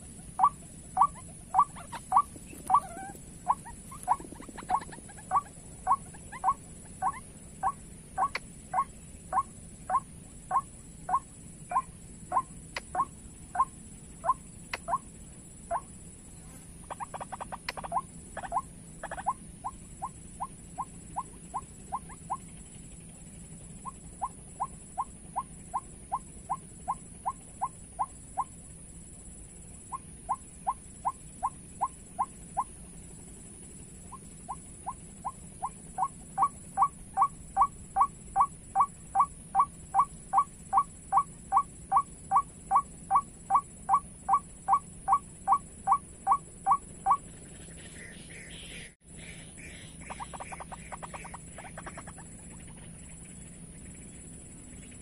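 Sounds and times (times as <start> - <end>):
waterbird repeated calls: 0.0 - 15.0.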